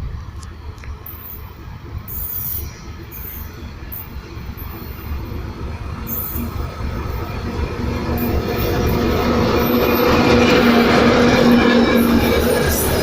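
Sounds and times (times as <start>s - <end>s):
diesel locomotive approaching: 0.0s - 13.0s.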